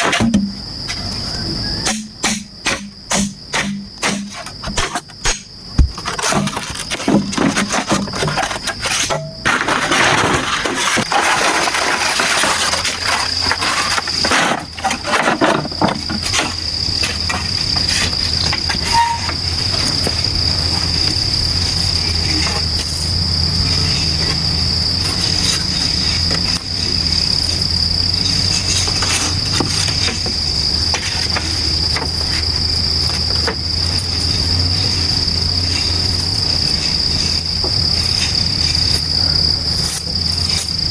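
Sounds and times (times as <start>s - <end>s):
knocks and rustling: 0.0s - 1.1s, 1.9s - 21.0s, 28.3s - 34.4s
insects droning: 0.0s - 40.9s.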